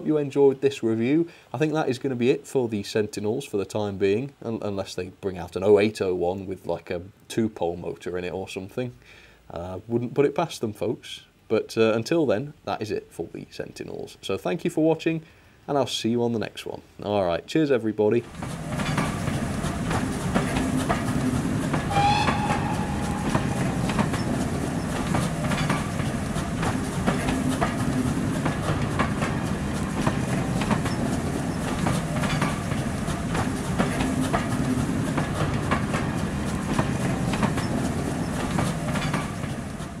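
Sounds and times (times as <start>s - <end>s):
train rumbling: 18.2s - 40.0s
wheels clicking over rail joints: 18.2s - 40.0s
high-pitched squeal: 21.9s - 25.6s.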